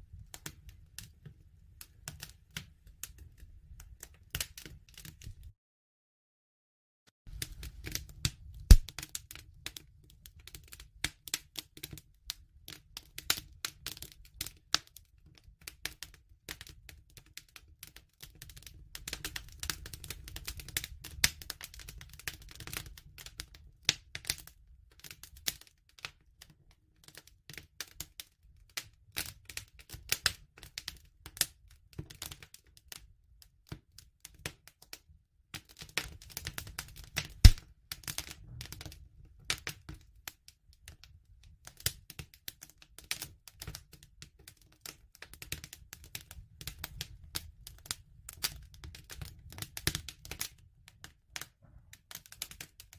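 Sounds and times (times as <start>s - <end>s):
wood fire crackling: 0.1s - 5.5s, 7.3s - 26.2s, 35.6s - 40.4s, 41.6s - 50.6s, 51.3s - 52.9s.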